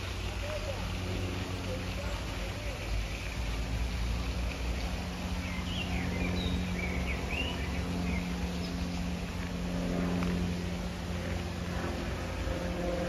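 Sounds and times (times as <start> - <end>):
low rumble and hum: 0.0 - 13.0
small bird singing: 5.4 - 9.0.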